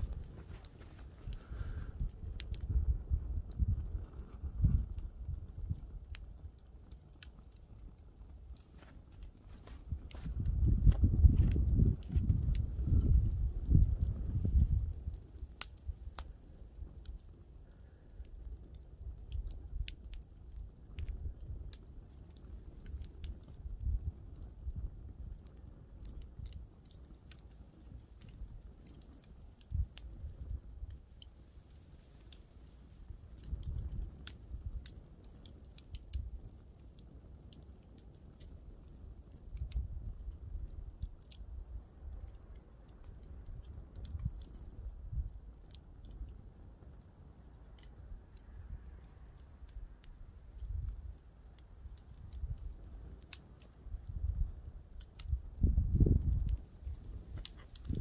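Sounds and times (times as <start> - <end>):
low steady rumble: 0.0 - 20.0
campfire crackling and popping: 0.0 - 58.0.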